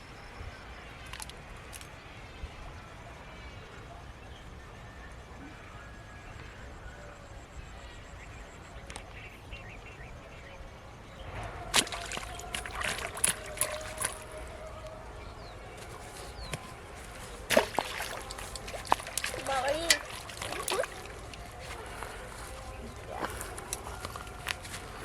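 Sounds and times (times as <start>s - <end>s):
water splashing and sloshing: 11.2s - 25.0s.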